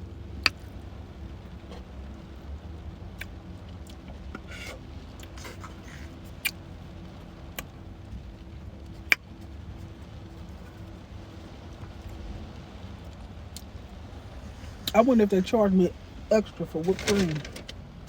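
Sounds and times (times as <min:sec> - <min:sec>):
low steady hum: 0:00.0 - 0:18.0
soft rustle: 0:08.1 - 0:14.9.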